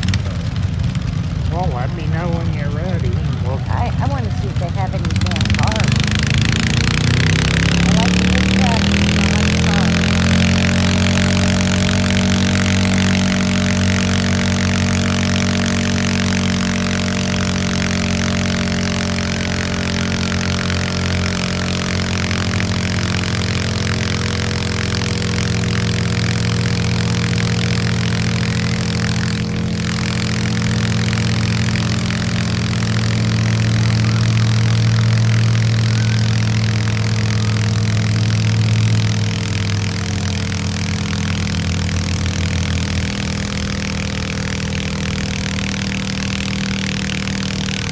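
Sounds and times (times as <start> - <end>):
deep rumble: 0.0 - 15.8
loud engine running: 0.0 - 47.9.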